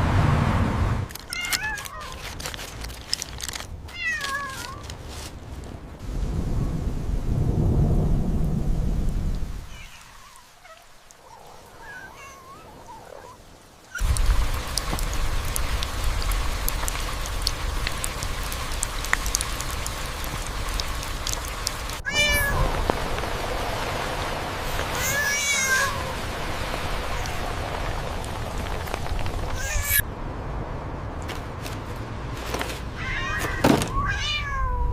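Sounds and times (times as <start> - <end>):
cat meowing: 3.9 - 4.8, 9.7 - 13.4, 22.0 - 22.8, 24.9 - 26.2, 33.0 - 34.9
loud steady hiss: 13.7 - 29.8.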